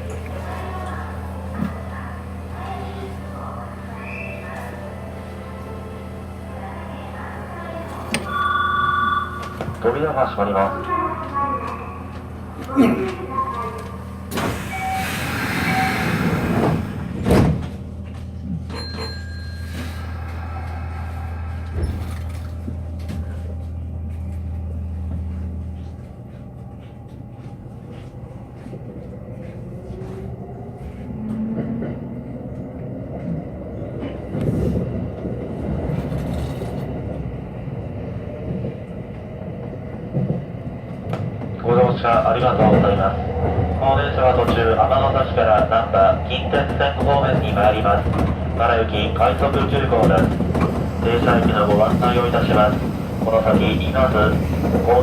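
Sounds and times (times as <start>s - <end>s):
electric train humming: 0.0s - 55.0s
train running noise: 0.0s - 55.0s
rail clatter: 7.7s - 8.6s, 40.0s - 55.0s
train doors sliding shut: 7.7s - 9.9s, 12.6s - 17.9s, 18.6s - 23.4s.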